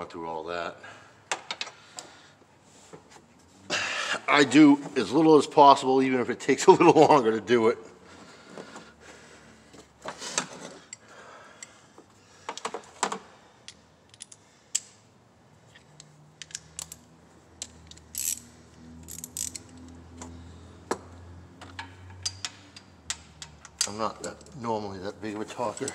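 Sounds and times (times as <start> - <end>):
metallic clicks of hand tools: 13.6 - 15.0, 15.8 - 17.0, 17.6 - 20.3, 21.6 - 24.6
socket ratchet clicking: 15.9 - 17.0, 17.6 - 20.1.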